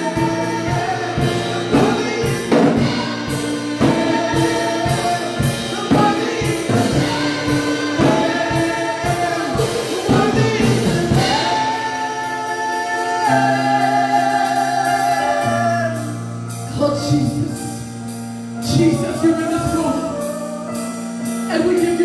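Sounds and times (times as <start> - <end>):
drum hits: 0.0 - 12.6
choir singing: 0.0 - 16.1
band playing: 0.0 - 22.0.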